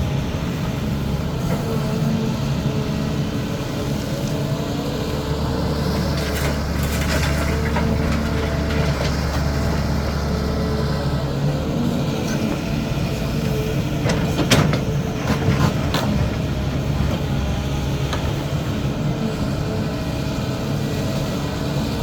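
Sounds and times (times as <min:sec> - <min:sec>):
excavator diesel engine running: 0:00.0 - 0:22.0
clanks and scraping: 0:06.1 - 0:09.5.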